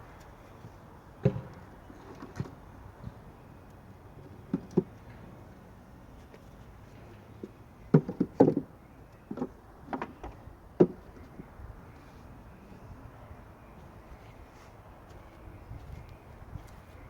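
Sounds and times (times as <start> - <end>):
hard knocks and clunks: 7.9 - 8.7.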